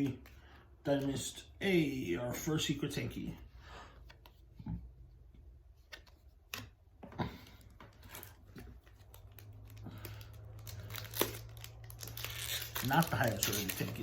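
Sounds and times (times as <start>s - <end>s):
soft rustling of foil packs: 7.5s - 14.0s.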